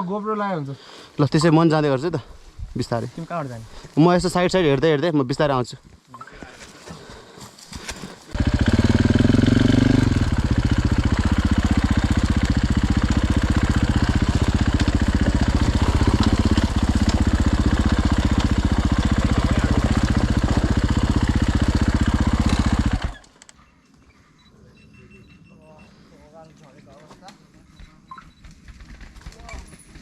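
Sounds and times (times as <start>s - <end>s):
dirt bike engine running: 8.2s - 23.3s.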